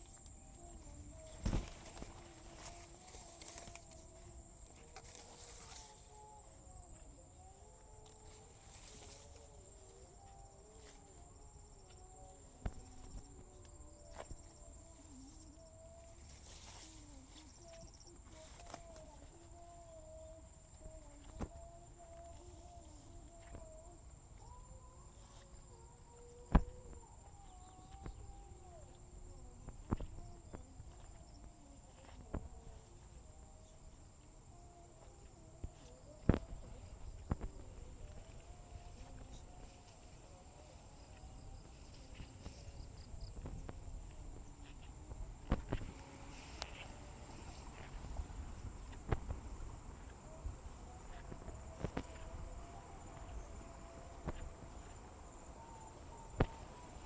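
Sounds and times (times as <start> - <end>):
faint wavering animal calls: 0.0 - 57.0
high-pitched insect drone: 0.0 - 57.0
soft footsteps: 26.2 - 57.0.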